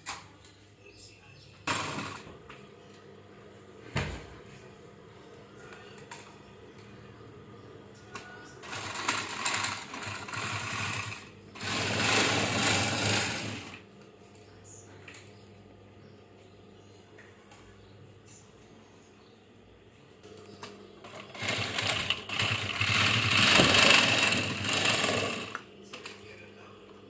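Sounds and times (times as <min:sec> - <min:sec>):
sewing machine stitching: 0:01.7 - 0:02.3, 0:08.2 - 0:13.8, 0:21.0 - 0:25.6.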